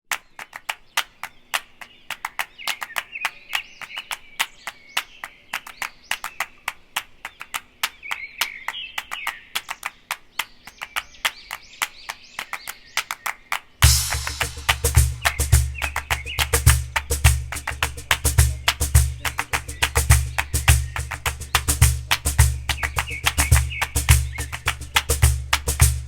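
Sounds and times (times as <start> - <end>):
small birds chirping: 0.2 - 26.0
sharp irregular clicks: 13.8 - 26.0.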